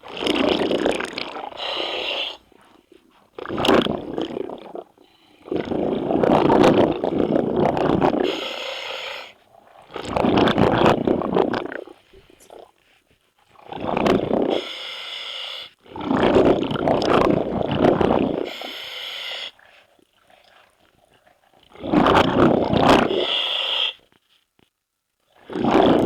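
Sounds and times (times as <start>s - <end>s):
exhaled bubbles underwater: 0.0s - 8.6s, 9.6s - 12.7s, 13.5s - 14.7s, 15.8s - 18.8s, 19.6s - 23.3s, 25.4s - 26.0s
regulator inhalation hiss: 1.6s - 2.4s, 8.2s - 9.4s, 14.6s - 15.7s, 18.5s - 19.6s, 23.1s - 24.0s.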